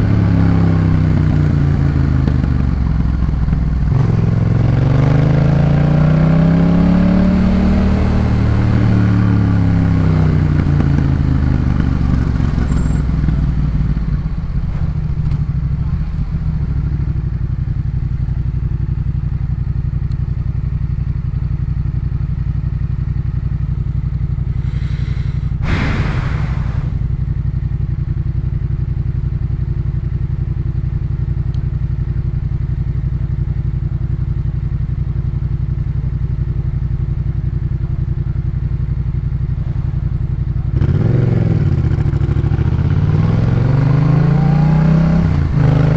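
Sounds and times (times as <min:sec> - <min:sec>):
motorcycle engine revving and idling: 0:00.0 - 0:45.9
short rushing noise: 0:12.6 - 0:17.2, 0:24.5 - 0:27.3.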